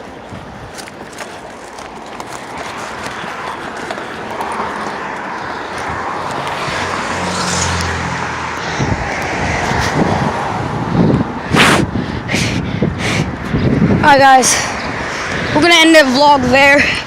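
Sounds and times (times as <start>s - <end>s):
vehicle engine drone: 1.1s - 14.0s.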